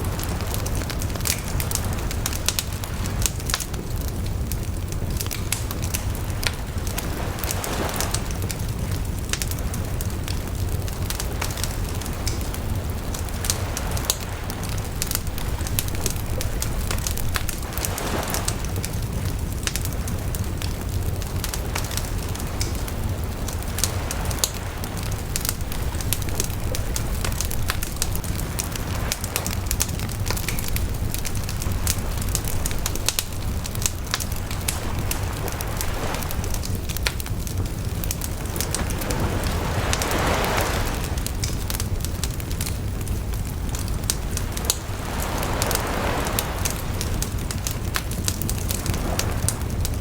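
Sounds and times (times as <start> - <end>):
bonfire crackling and popping: 0.0 - 50.0.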